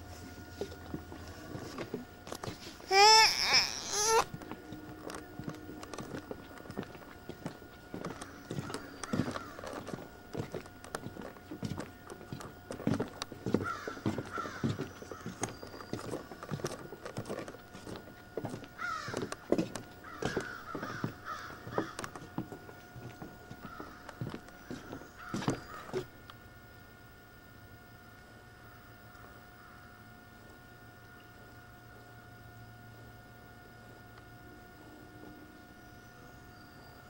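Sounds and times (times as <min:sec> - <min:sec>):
footsteps on wooden boardwalk: 0:00.1 - 0:26.2.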